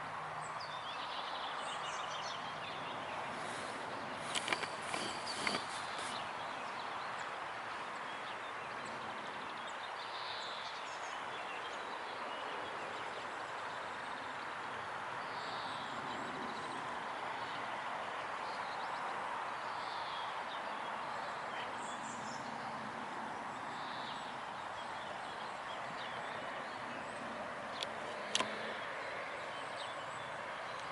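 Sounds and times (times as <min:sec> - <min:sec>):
sharp clicks: 0:04.2 - 0:06.1, 0:27.8 - 0:28.6.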